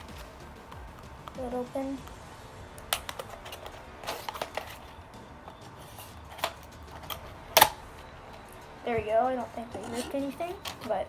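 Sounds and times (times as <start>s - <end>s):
clicks and scrapes: 2.9s - 4.9s.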